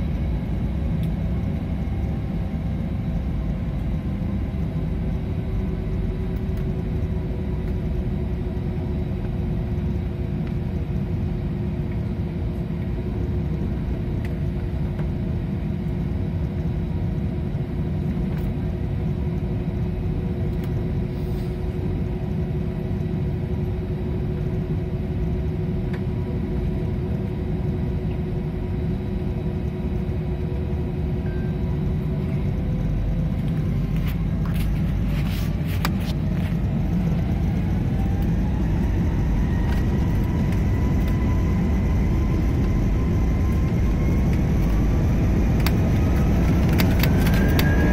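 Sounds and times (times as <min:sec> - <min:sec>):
airliner cabin engine rumble: 0:00.0 - 0:47.9
constant hum: 0:00.0 - 0:47.9.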